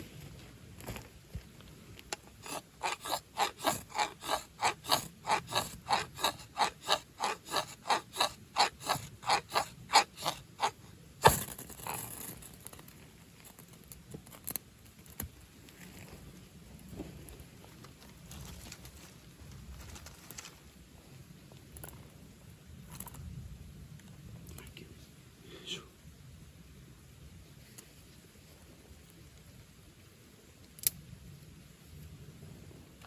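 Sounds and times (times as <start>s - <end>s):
hand saw cutting wood: 2.3s - 12.1s.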